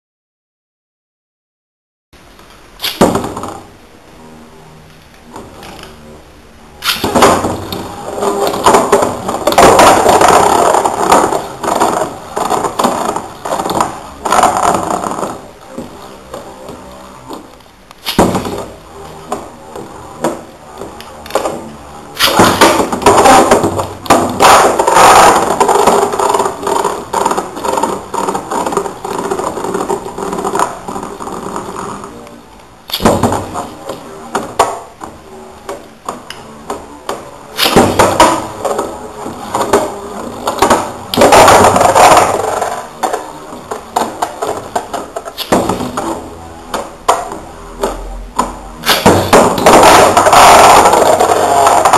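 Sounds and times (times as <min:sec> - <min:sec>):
spinning tops colliding: 0:02.8 - 0:03.7, 0:06.8 - 0:15.4, 0:18.0 - 0:18.8, 0:21.2 - 0:31.6, 0:32.9 - 0:35.0, 0:37.5 - 0:46.3, 0:48.8 - 0:51.9.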